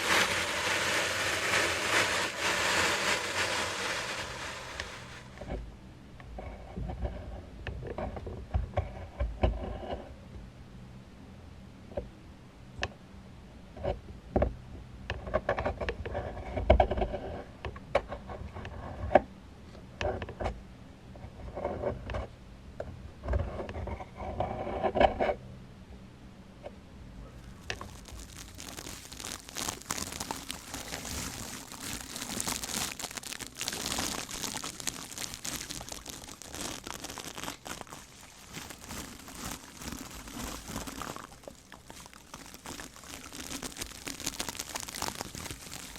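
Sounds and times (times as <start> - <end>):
hissing rustle of brushing: 0.0 - 5.4
taps clicks and crinkling: 27.4 - 45.9.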